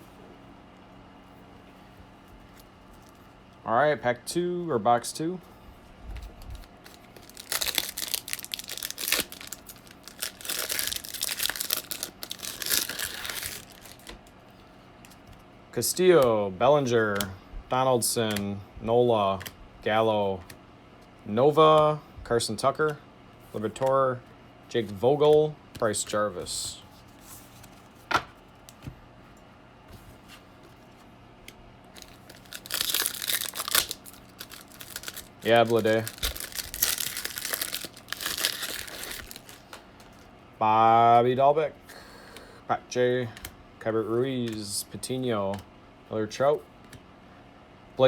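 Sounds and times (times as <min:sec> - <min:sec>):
cards ticking and rustling: 0:06.2 - 0:14.3, 0:32.0 - 0:40.3
plastic wrapping tearing and crinkling: 0:06.4 - 0:14.3, 0:31.9 - 0:40.2.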